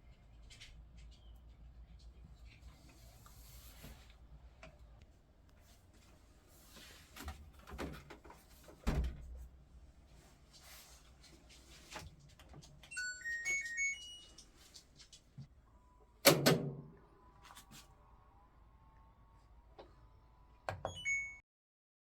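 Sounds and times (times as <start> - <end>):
electronic beep melody: 13.0 - 14.3, 20.9 - 21.4.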